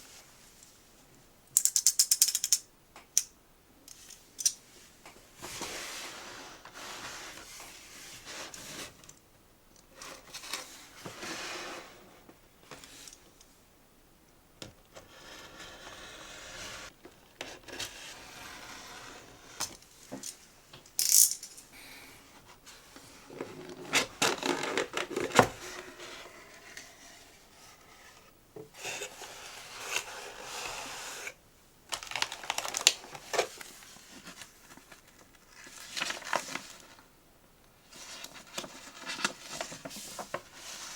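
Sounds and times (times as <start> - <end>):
wrappers and cardboard rustling: 31.9 - 37.0.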